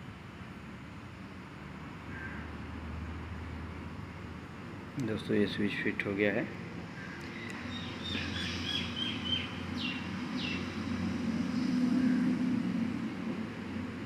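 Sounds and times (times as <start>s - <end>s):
birds chirping: 6.9s - 10.9s.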